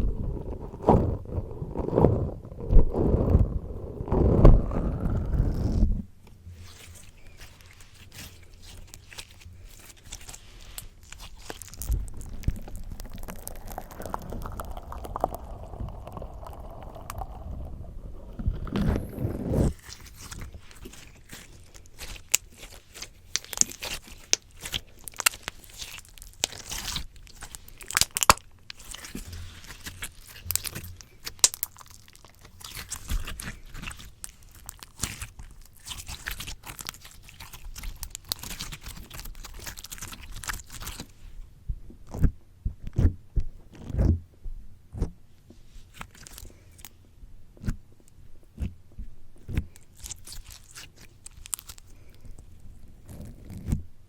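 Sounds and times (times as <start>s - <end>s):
slime squishing sticky pops: 6.7s - 41.1s.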